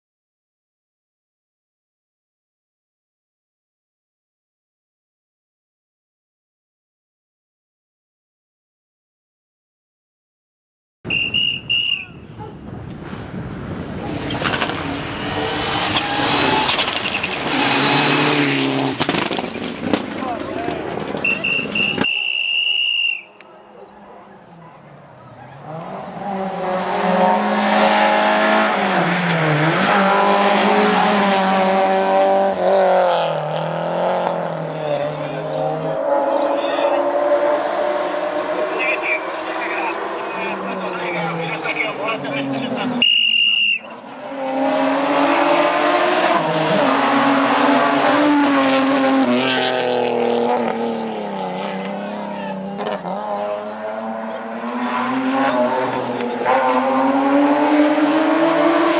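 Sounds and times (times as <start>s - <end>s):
rally car engine at high revs: 13.9s - 20.2s, 25.4s - 43.0s, 43.9s - 58.9s.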